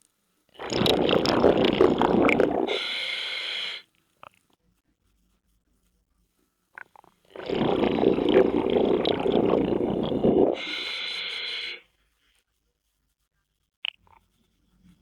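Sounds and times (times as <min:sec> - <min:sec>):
exhaled bubbles underwater: 0:00.6 - 0:02.9, 0:07.3 - 0:11.8
regulator inhale hiss: 0:02.4 - 0:03.8, 0:09.9 - 0:11.8.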